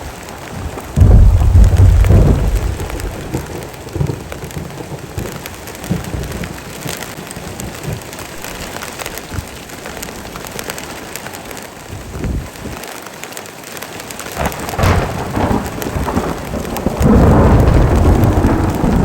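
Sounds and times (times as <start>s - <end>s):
heavy rain falling: 0.0s - 19.0s
raindrops striking close by: 0.0s - 19.0s
low roll of thunder: 0.6s - 8.1s, 14.4s - 19.0s.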